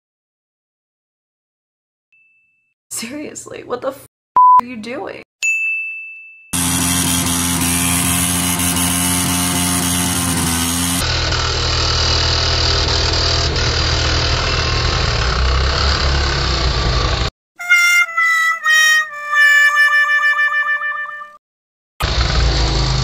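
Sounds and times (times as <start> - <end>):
vehicle engine running: 6.6 - 17.3, 22.0 - 23.0
deep engine rumble: 11.1 - 17.3.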